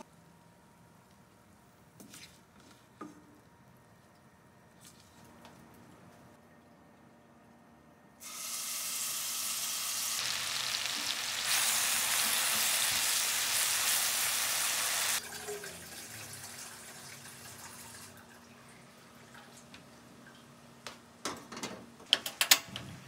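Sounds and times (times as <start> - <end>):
food sizzling in hot oil: 8.2 - 15.2.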